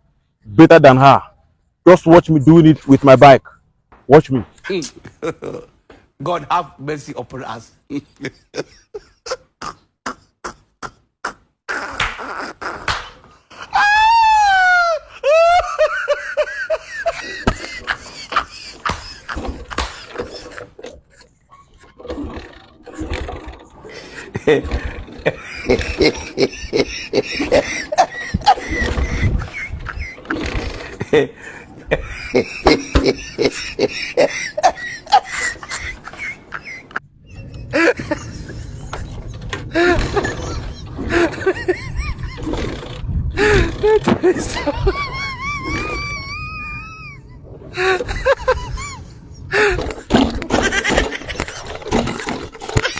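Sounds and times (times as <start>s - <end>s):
high laughter: 5.0s - 5.8s, 7.9s - 52.9s
knocks and clatter: 17.0s - 30.9s, 49.8s - 52.9s.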